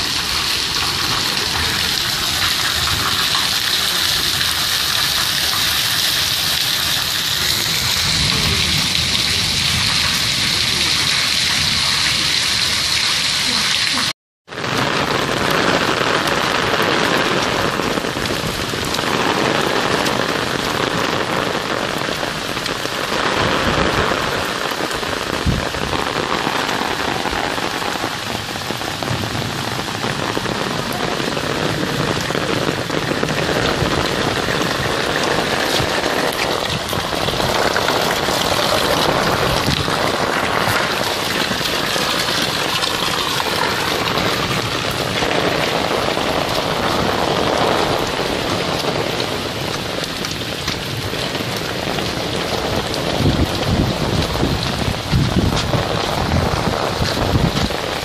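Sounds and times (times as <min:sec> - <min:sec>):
heavy rain on wet ground: 0:00.0 - 0:58.0.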